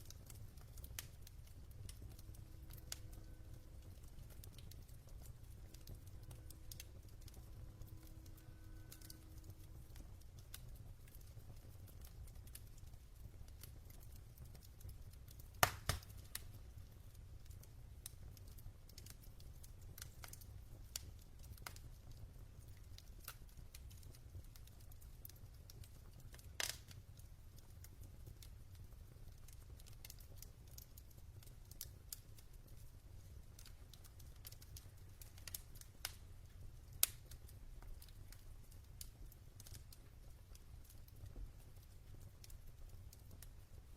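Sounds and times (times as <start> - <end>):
fire crackling and popping: 0.0 - 43.9
fire rumbling: 0.0 - 43.9.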